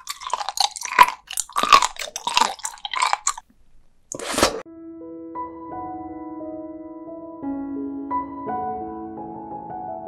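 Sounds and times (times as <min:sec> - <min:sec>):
crunchy wet chewing: 0:00.0 - 0:03.5.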